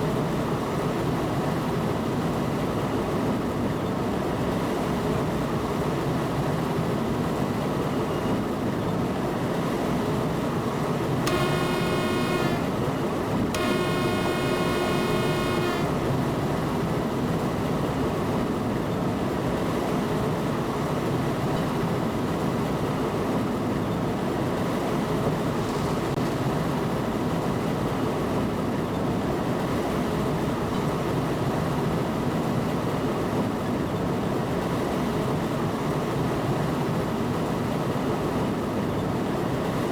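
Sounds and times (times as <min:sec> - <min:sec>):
train horn blasts: 0:11.3 - 0:12.9, 0:13.6 - 0:16.2.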